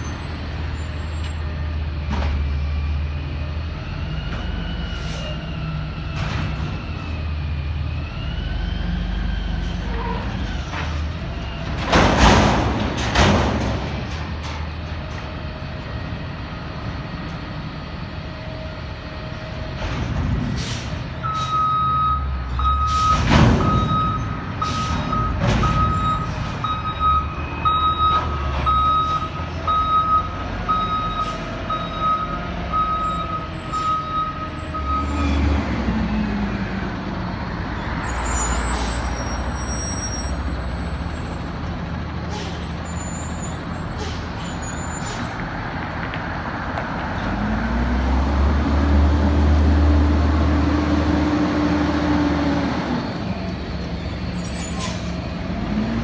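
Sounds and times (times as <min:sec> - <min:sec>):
metal bangs and clanks: 0:11.7 - 0:14.7
reverse alarm beeping: 0:21.3 - 0:35.2.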